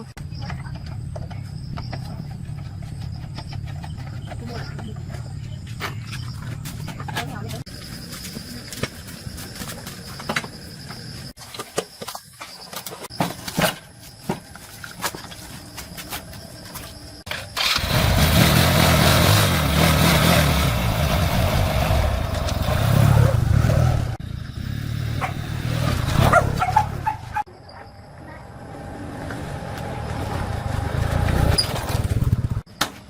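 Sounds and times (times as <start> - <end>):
motorbike engine running: 29.0 - 32.7.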